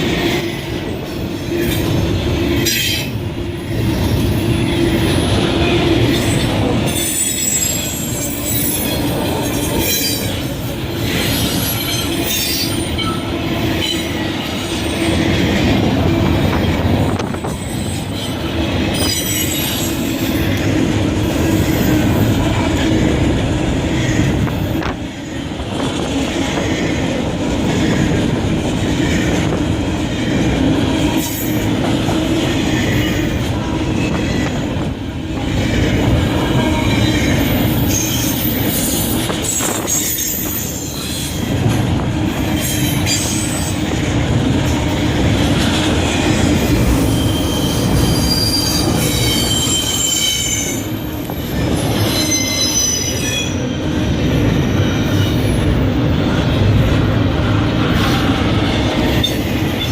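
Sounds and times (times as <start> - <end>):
railroad cars rumbling past: 0.0 - 59.9
high-pitched wheel squeal: 47.0 - 53.6.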